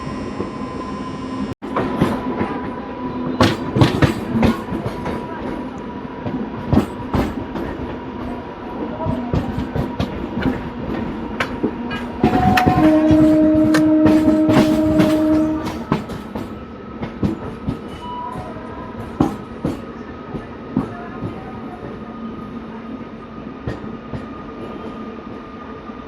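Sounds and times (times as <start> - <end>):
train rumble: 1.4 - 25.5
train wheels clicking over rail joints: 3.4 - 5.6, 9.1 - 21.4
train horn: 11.9 - 16.1.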